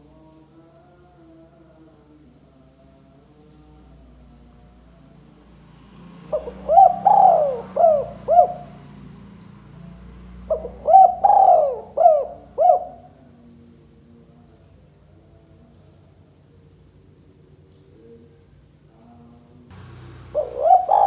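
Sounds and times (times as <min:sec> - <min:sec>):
dove cooing: 0:06.3 - 0:08.8, 0:10.5 - 0:13.1, 0:19.8 - 0:21.0.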